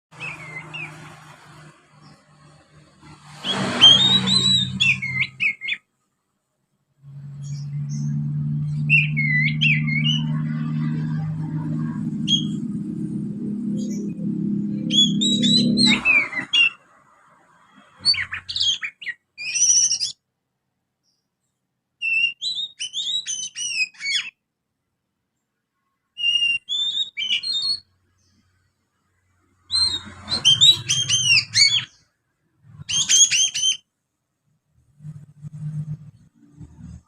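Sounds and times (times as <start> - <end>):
sparrow chirps: 0.2 - 5.9, 7.1 - 12.8, 13.6 - 20.2, 22.0 - 24.4, 26.2 - 28.5, 29.6 - 33.9.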